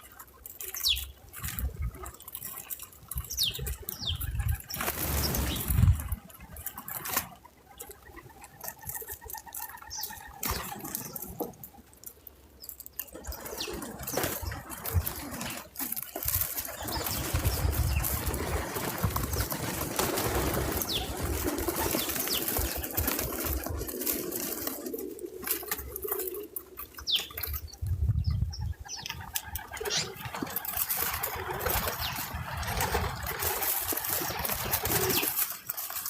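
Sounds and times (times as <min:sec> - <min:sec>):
bird wings flapping: 0:00.0 - 0:12.2, 0:13.0 - 0:27.9, 0:28.6 - 0:36.0
clicks and rustles: 0:00.0 - 0:28.1, 0:28.9 - 0:36.0
bird chirps: 0:00.7 - 0:01.2, 0:03.3 - 0:05.7, 0:27.0 - 0:29.2.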